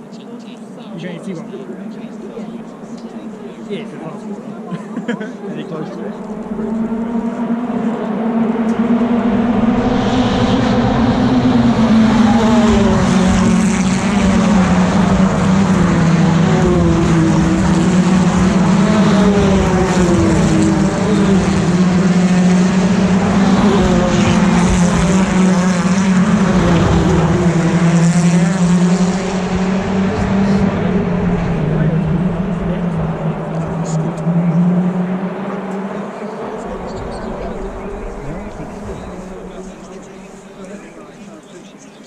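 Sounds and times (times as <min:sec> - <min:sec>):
race cars passing at speed: 0:00.0 - 0:42.0.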